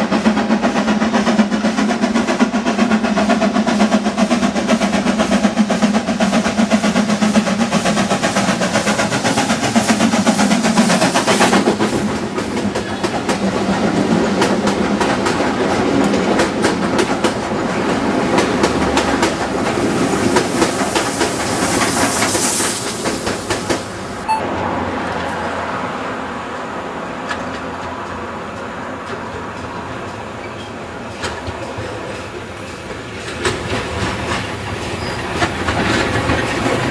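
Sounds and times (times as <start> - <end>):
train wheels clicking over rail joints: 0.0 - 24.2, 27.2 - 36.9
steam train running past: 0.0 - 36.9.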